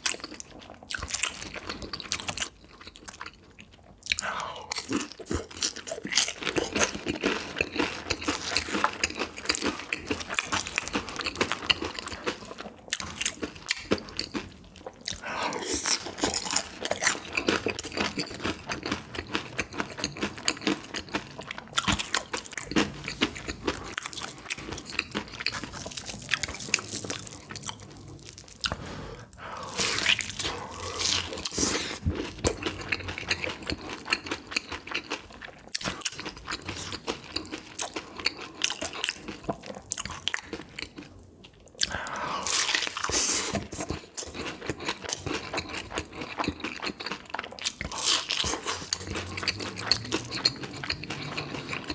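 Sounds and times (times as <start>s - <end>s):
biting and chewing food: 0.0s - 51.9s.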